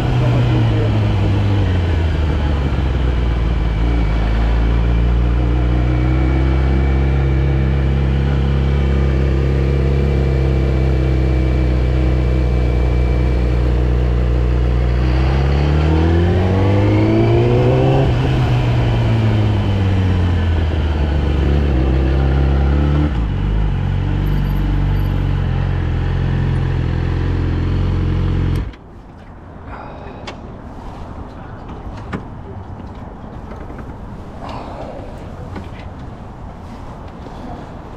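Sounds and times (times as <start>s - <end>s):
motorcycle engine idling and revving: 0.0s - 28.8s.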